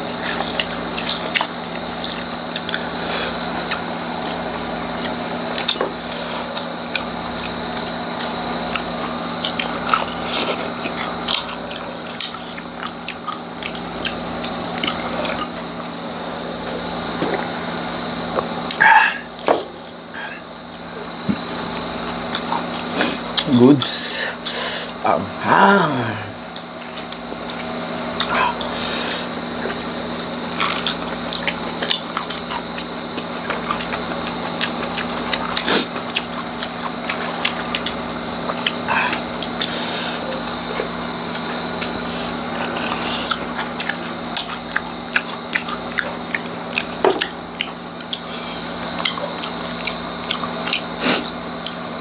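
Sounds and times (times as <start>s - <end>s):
crunching crispy fried food: 0.0s - 20.3s
steady low hum: 0.0s - 52.0s.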